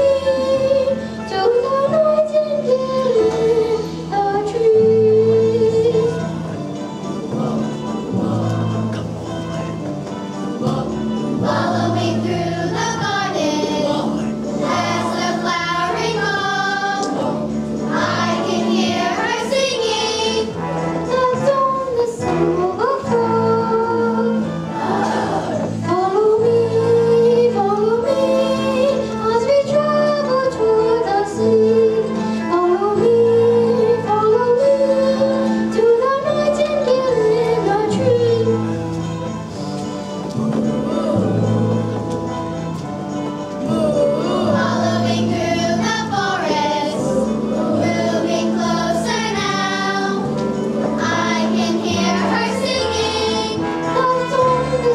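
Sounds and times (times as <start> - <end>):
instrumental accompaniment: 0.0 - 54.9
children's chorus singing: 10.4 - 32.0, 40.4 - 42.7, 43.5 - 54.9.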